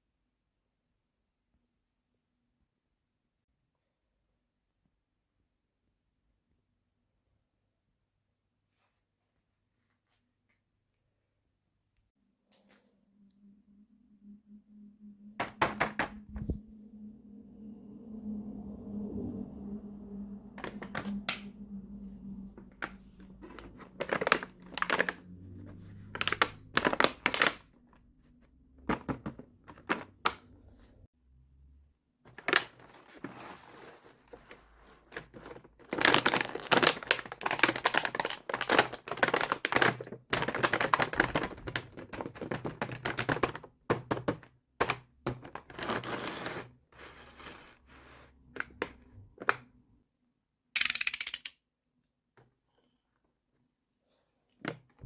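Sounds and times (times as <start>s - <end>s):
packaging crinkling and tearing: 22.8s - 27.7s, 35.2s - 43.2s
small plastic pieces clicking: 50.8s - 51.6s.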